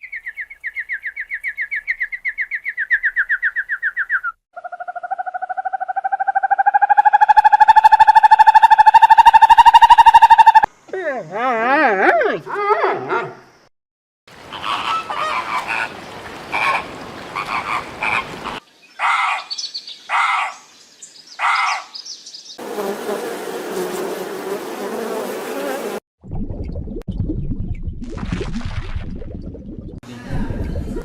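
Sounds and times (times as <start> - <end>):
frogs croaking: 4.6 - 10.9, 14.3 - 22.0.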